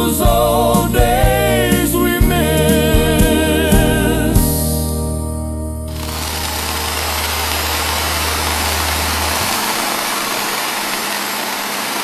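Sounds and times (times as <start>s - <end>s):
steady rushing noise: 5.9s - 12.0s.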